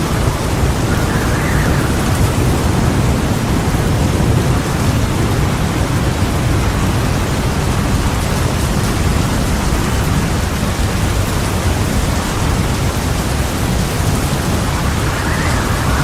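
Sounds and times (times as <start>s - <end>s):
heavy rain: 0.0s - 16.0s
low thunder rumble: 0.0s - 16.0s.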